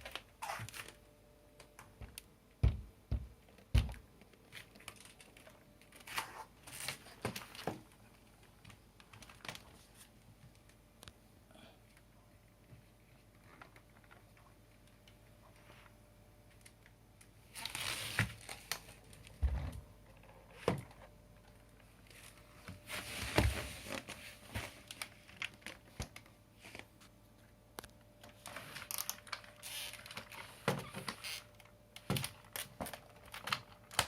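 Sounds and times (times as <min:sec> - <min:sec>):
plastic parts rustling and clattering: 0:03.5 - 0:10.1, 0:17.5 - 0:26.9, 0:27.8 - 0:34.0.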